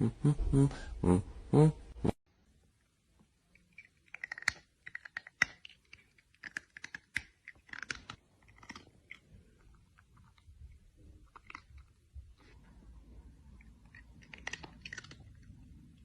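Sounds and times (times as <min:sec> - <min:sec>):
small clicks and crackles: 0:03.5 - 0:12.6, 0:13.5 - 0:15.6.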